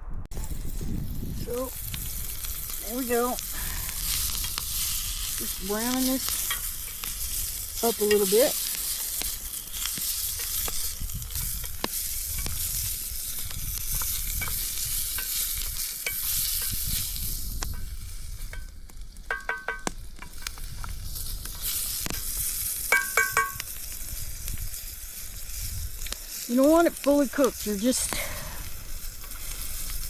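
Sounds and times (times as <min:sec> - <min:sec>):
vegetables sizzling in a pan: 0:00.4 - 0:30.0
stirring scrapes and clicks: 0:01.9 - 0:17.8
utensil tapping a pan: 0:18.5 - 0:20.5, 0:22.9 - 0:23.7.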